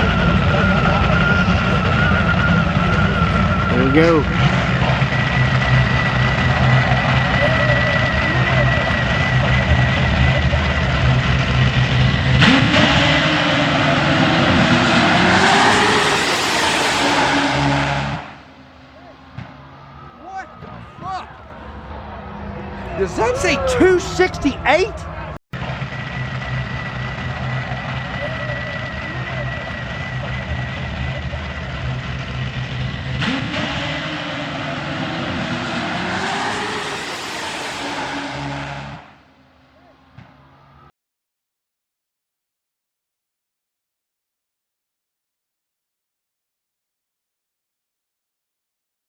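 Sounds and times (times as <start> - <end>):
drag motorcycle engine at full throttle: 0.0 - 19.3, 25.6 - 39.2.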